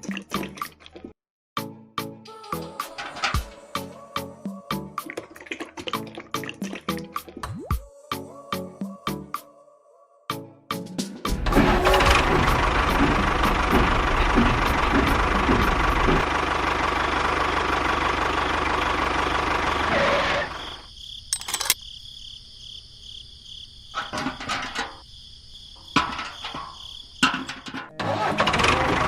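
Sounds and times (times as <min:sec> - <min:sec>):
engine running: 0:11.3 - 0:20.8, 0:28.0 - 0:29.0
scattered clicks and knocks: 0:11.5 - 0:16.3, 0:21.4 - 0:21.8.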